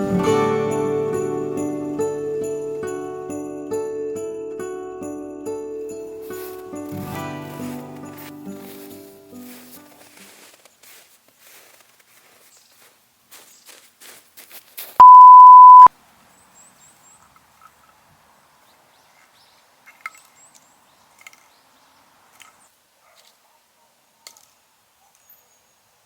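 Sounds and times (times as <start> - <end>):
electronic beep: 15.0 - 15.9.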